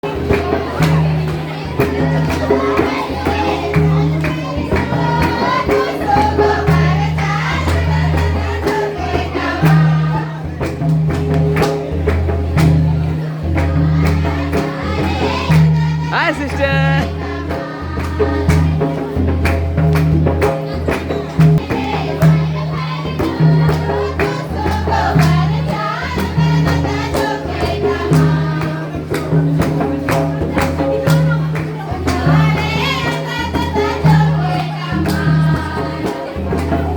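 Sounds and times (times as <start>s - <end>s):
voices singing together: 0.0s - 10.8s, 13.2s - 36.9s
steady drum beat: 13.7s - 17.4s
steady beat: 16.1s - 17.2s.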